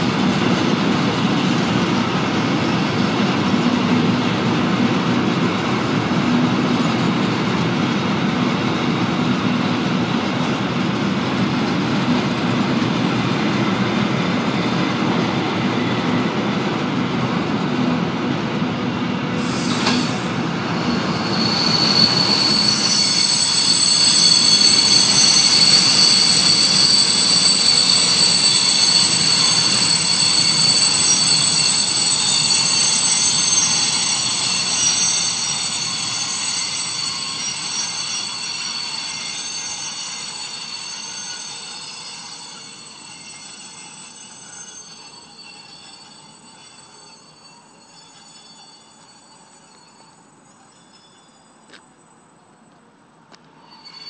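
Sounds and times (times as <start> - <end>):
freight train wheels rumbling: 0.0 - 50.0
high-pitched wheel squeal: 19.4 - 52.0, 53.6 - 54.0.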